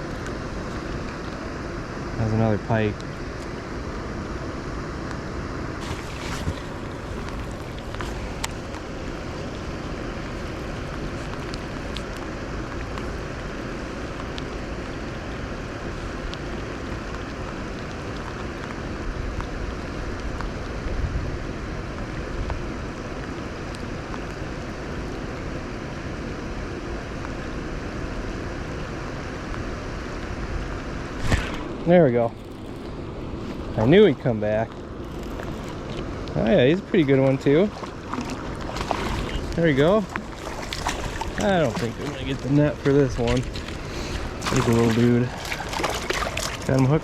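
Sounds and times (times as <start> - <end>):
wind buffeting microphone: 5.7 - 13.0.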